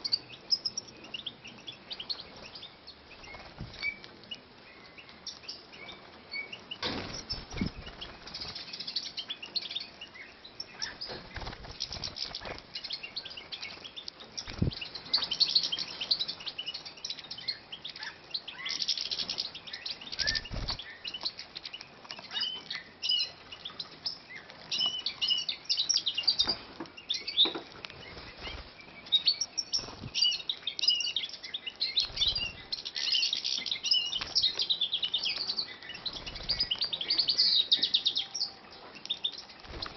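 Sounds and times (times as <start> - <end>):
finches chirping: 0.0 - 39.9
knocks of birds moving: 1.6 - 10.0, 10.6 - 38.0, 38.8 - 39.9
wings fluttering: 3.2 - 4.2, 6.8 - 9.1, 10.8 - 16.8, 20.1 - 22.2, 27.8 - 30.6, 32.0 - 37.3, 39.5 - 39.9.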